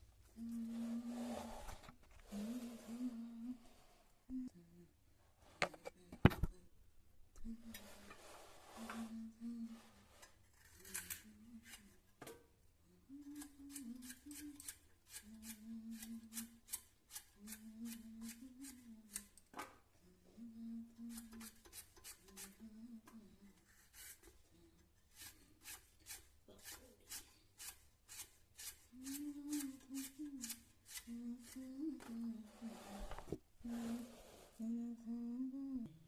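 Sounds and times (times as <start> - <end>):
person humming: 0.4 - 1.5, 2.3 - 3.7, 4.3 - 5.0, 8.8 - 10.0, 10.8 - 12.0, 12.8 - 16.8, 17.4 - 19.4, 20.0 - 21.6, 22.2 - 23.6, 28.9 - 36.0.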